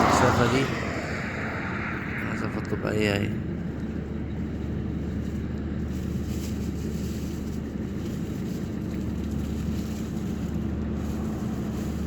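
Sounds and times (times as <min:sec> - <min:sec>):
wind noise: 0:00.0 - 0:06.1
low engine hum: 0:00.0 - 0:12.0.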